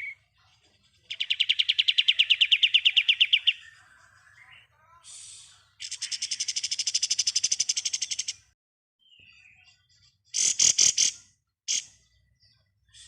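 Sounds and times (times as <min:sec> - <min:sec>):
bird rattling trill: 0:06.2 - 0:08.4.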